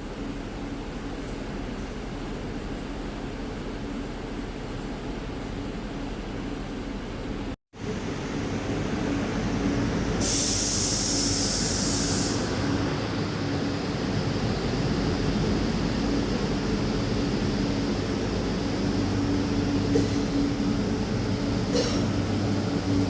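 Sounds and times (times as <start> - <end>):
electric train hum: 0.0 - 23.0
pneumatic hiss: 10.2 - 12.6.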